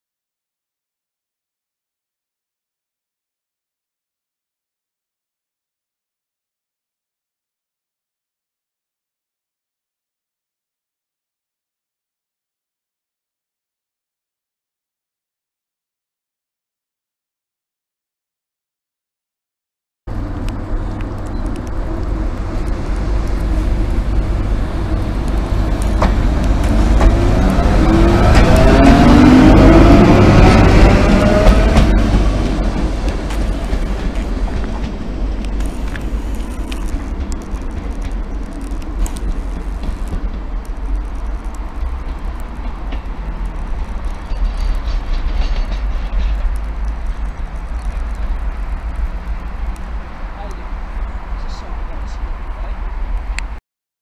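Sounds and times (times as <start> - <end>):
electric locomotive rumble: 20.1 - 53.6.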